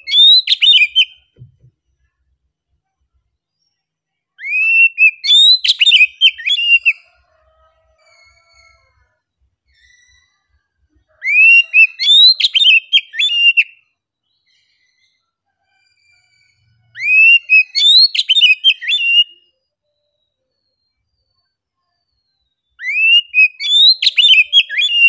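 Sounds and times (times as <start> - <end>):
songbird whistling song: 0.0 - 1.4, 3.5 - 7.0, 9.7 - 10.6, 11.2 - 15.3, 16.0 - 25.0.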